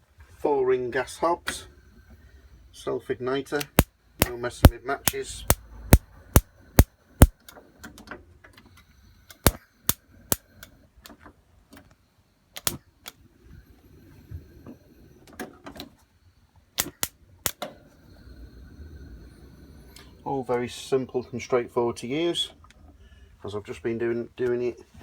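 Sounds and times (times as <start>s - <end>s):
gas hob igniter clicking: 3.6s - 3.9s.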